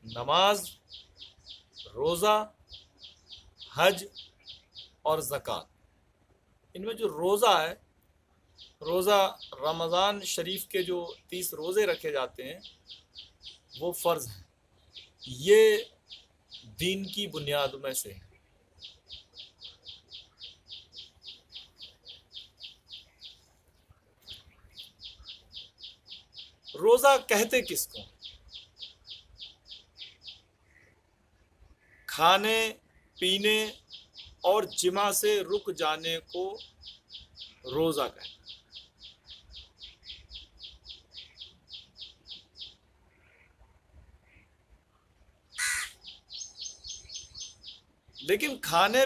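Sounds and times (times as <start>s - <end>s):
bird chirping: 0.0s - 5.7s, 8.4s - 49.0s
bird calling: 24.2s - 31.0s, 45.5s - 49.0s.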